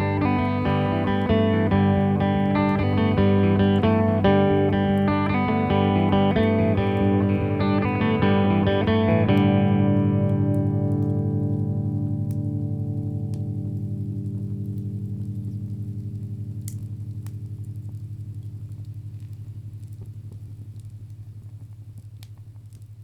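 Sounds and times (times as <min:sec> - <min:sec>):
guitar chord ringing: 0:00.0 - 0:16.6
guitar picking slow melody: 0:00.0 - 0:19.9.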